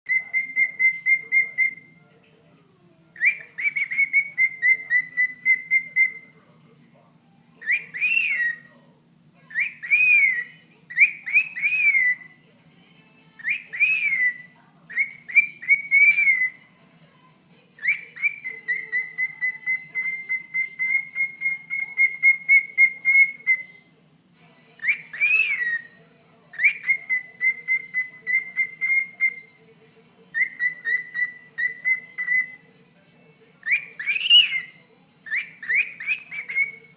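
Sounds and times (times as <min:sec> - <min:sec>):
cockatiel whistles: 0:00.1 - 0:01.9, 0:03.2 - 0:06.3, 0:07.6 - 0:08.7, 0:09.5 - 0:12.3, 0:13.4 - 0:16.6, 0:17.8 - 0:23.7, 0:24.8 - 0:25.9, 0:26.6 - 0:29.6, 0:30.4 - 0:32.6, 0:33.6 - 0:36.9
cockatiel chirping: 0:00.1 - 0:02.0, 0:03.2 - 0:06.4, 0:07.6 - 0:08.7, 0:09.5 - 0:12.4, 0:13.4 - 0:16.6, 0:17.8 - 0:23.8, 0:24.8 - 0:29.6, 0:30.3 - 0:32.6, 0:33.6 - 0:36.9.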